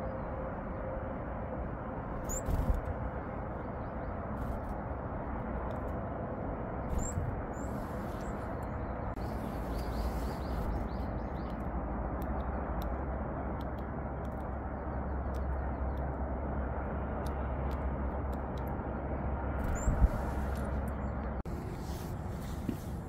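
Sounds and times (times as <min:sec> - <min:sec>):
steady outdoor rush: 0:00.0 - 0:23.0
high bird chirps: 0:02.2 - 0:02.7.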